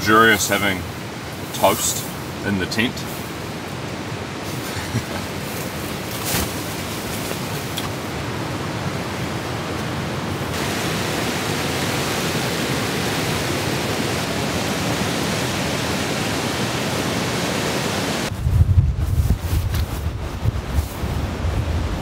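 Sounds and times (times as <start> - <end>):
heavy rain falling: 0.0 - 18.3
wind buffeting microphone: 18.3 - 22.0.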